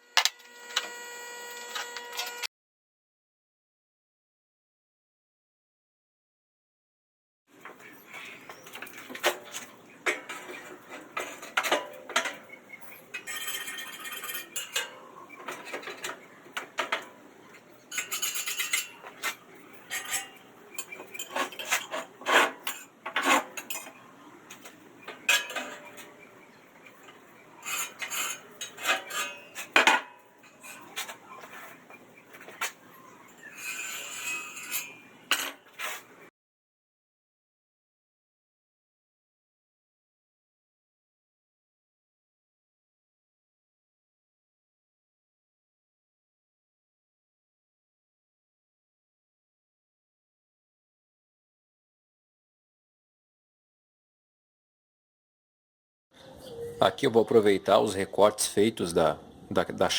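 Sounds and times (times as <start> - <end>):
metal scraping on metal: 7.7 - 36.3
steel clanking on metal surface: 17.9 - 24.0.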